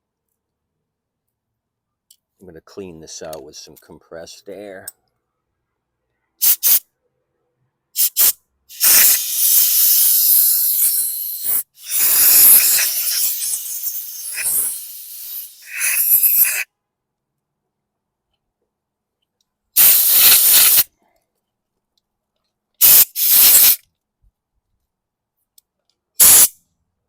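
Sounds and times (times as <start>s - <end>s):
air puffs: 8.0s - 16.6s, 19.8s - 20.9s, 22.8s - 23.8s
compressed air hissing: 8.0s - 16.6s, 19.8s - 20.9s, 22.8s - 23.8s, 26.2s - 26.5s.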